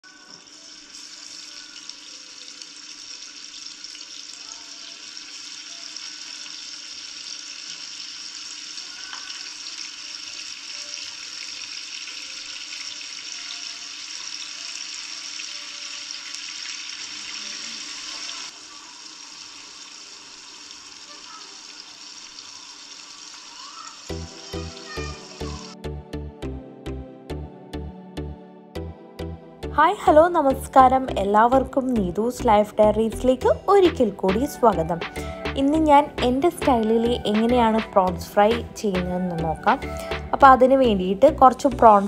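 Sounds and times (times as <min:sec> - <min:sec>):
prawns sizzling in hot oil: 0:00.0 - 0:25.8.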